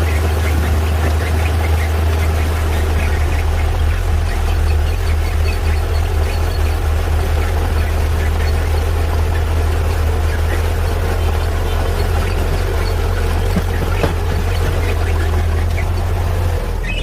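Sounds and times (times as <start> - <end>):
heavy diesel engine droning: 0.0 - 17.0.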